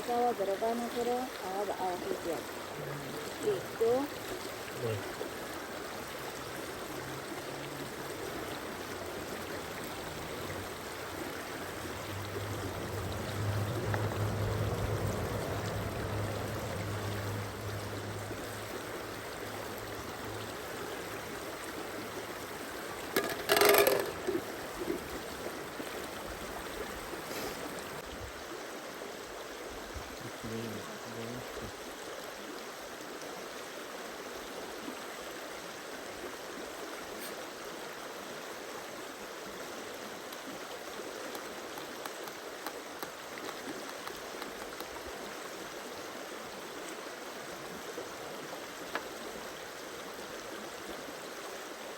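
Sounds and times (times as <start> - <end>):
stream flowing: 0.0 - 51.9
low hum: 11.4 - 20.7.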